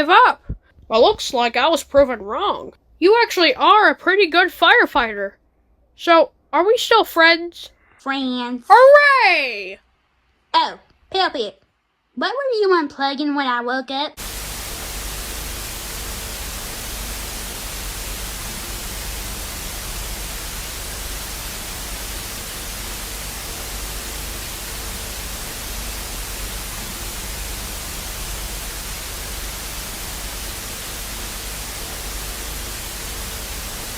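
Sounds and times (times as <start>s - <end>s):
static hiss: 14.2s - 33.9s.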